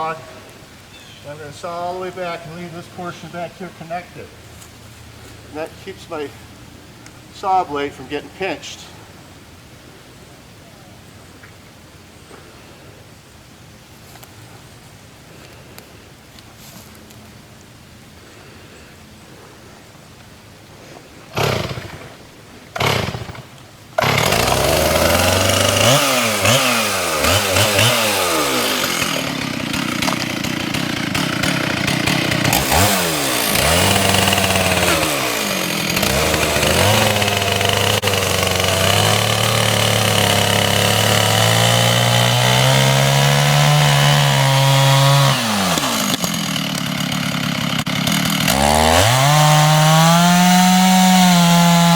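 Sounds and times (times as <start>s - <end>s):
chainsaw pull starts: 1.3s - 4.3s, 21.3s - 51.9s
chainsaw cutting into wood: 21.3s - 51.9s.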